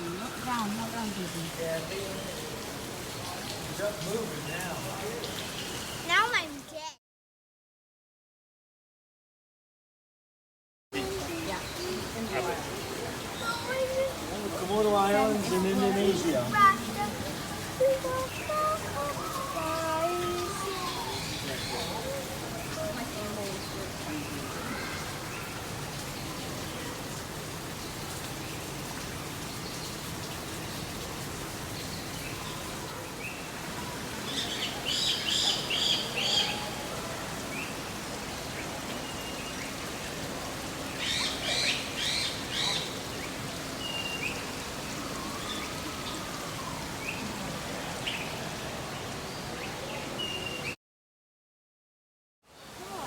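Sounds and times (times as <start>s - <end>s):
small birds chirping: 0.0s - 6.7s, 11.2s - 31.0s, 31.7s - 36.8s, 37.4s - 47.3s
falling water hissing: 0.0s - 6.8s, 11.0s - 50.8s.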